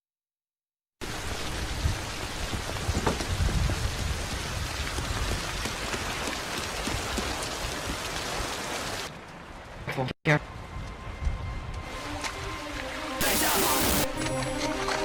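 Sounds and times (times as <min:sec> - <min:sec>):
heavy rain pouring: 0:01.0 - 0:09.1, 0:13.2 - 0:14.1.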